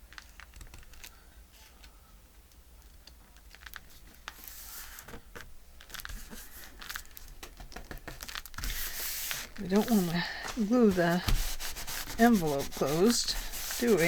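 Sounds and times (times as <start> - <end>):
paper crinkling and rustling: 3.4 - 14.0
small taps on paper: 7.4 - 8.8.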